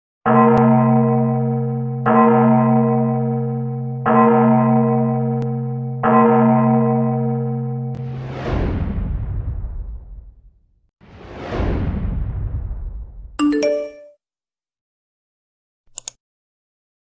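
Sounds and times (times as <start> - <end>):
deep bell ringing: 0.3 - 8.1
rushing whoosh: 11.1 - 13.4.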